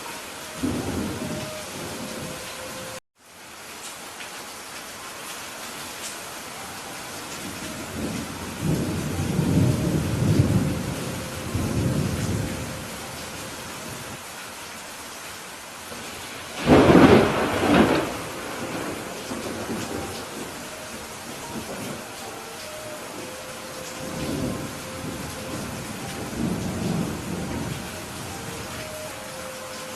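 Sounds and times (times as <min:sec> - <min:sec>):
steady rain: 0:00.0 - 0:29.9
rumble of thunder: 0:07.8 - 0:13.0, 0:16.6 - 0:22.0
sharp thunderclap: 0:16.6 - 0:20.2.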